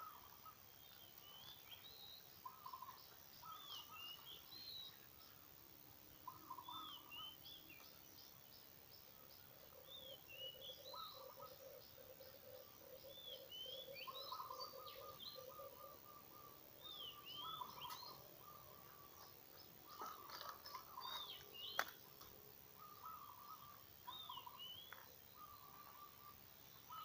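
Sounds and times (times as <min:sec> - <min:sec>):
birds whistling: 0:01.2 - 0:05.0, 0:06.3 - 0:07.9, 0:09.8 - 0:22.2, 0:22.8 - 0:27.0
pulsing bird trills: 0:09.7 - 0:22.0, 0:22.7 - 0:27.0.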